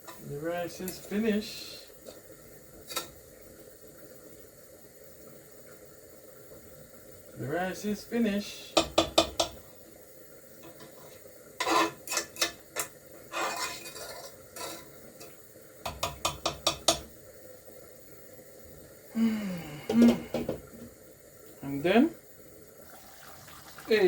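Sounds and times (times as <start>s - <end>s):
metal spoon scraping a pot: 10.7s - 15.0s.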